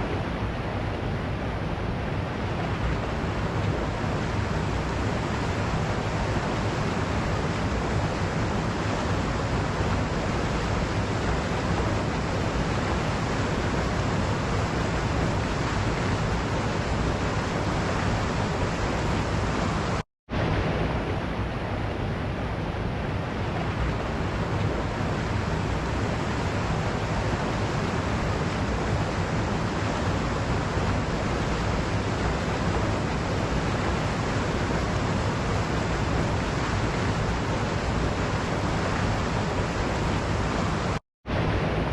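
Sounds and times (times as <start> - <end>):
waterfall rushing: 23.7 - 41.0.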